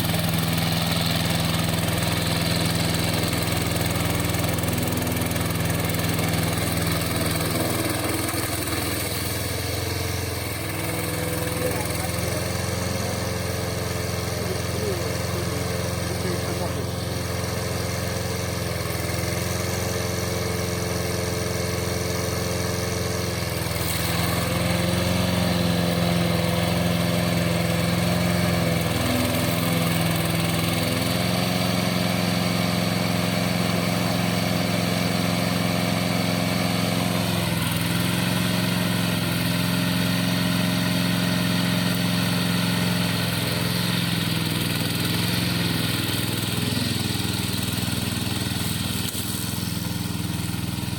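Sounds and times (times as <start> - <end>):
lawn mower engine running: 0.0 - 50.9.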